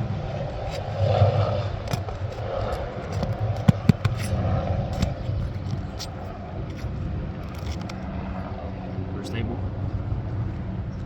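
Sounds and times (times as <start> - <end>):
low engine-like drone: 0.0 - 11.0
pry bar scraping roof shingles: 1.9 - 4.4.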